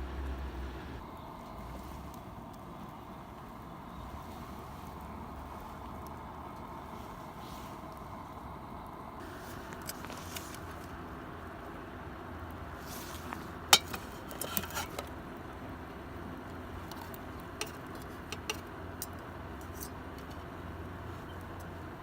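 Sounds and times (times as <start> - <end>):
low background rumble: 0.0 - 14.4
camping gear clicking and clinking: 9.2 - 11.0, 12.8 - 15.2, 16.8 - 20.5.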